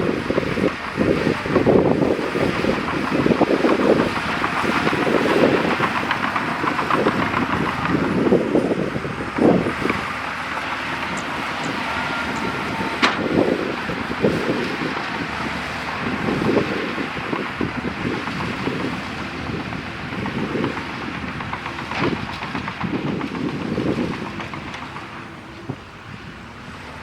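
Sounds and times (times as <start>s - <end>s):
bulldozer diesel engine: 0.0s - 27.0s
rattling and clanking: 1.0s - 26.2s.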